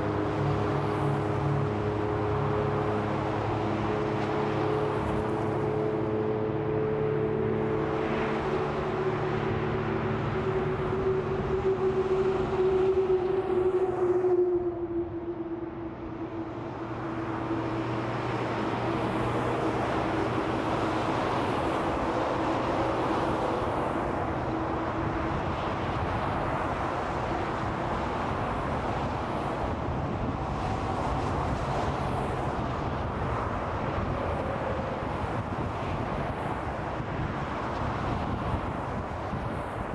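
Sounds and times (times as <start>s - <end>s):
freeway traffic rushing: 0.0s - 39.9s
falling humming tone: 5.5s - 26.8s.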